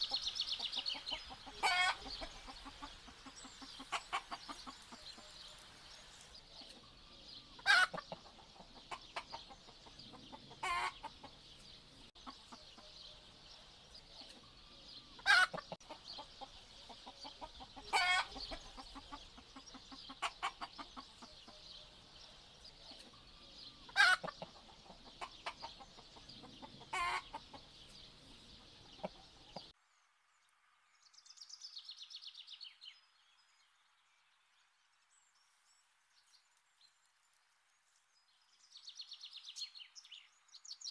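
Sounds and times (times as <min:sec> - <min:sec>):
hens clucking and squawking: 0:00.0 - 0:05.9, 0:06.5 - 0:13.0, 0:14.2 - 0:21.7, 0:22.8 - 0:29.7.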